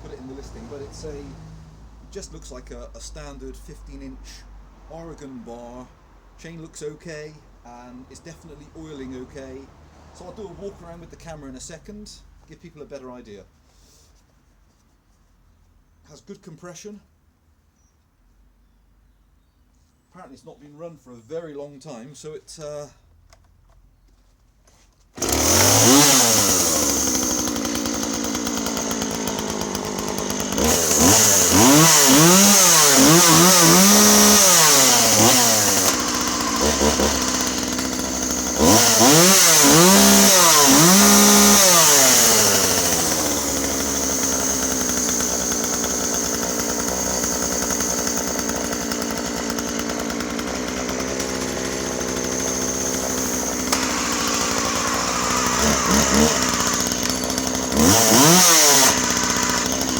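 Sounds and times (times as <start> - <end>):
chainsaw engine revving and idling: 0.0 - 6.9, 7.7 - 12.0, 25.2 - 59.9.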